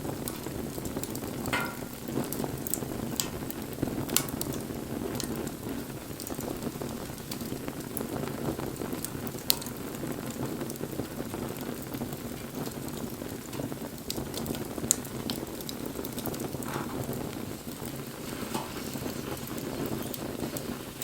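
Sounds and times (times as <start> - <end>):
burning wood crackling and popping: 0.0 - 21.0
rush of flame: 0.0 - 21.0.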